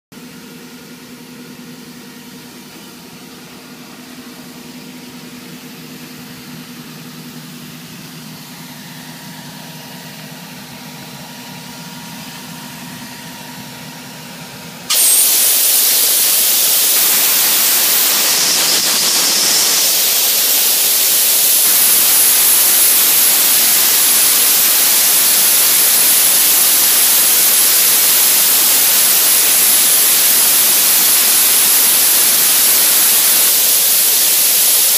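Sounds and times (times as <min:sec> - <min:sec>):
compressed air blasting hiss: 0:14.9 - 0:34.9
machine humming: 0:14.9 - 0:34.9
thin high whistle: 0:14.9 - 0:34.9.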